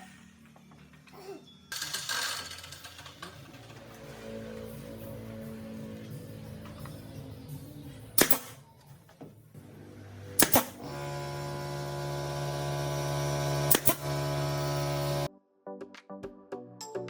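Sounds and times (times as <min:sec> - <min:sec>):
steady machine hum: 0:09.6 - 0:15.3.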